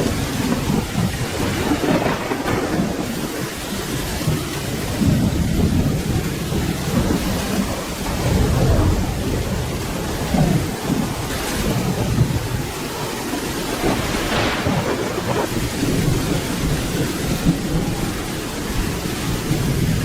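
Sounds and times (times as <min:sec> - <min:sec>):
low rolling thunder: 0:00.0 - 0:20.0
steady rain: 0:00.0 - 0:20.0.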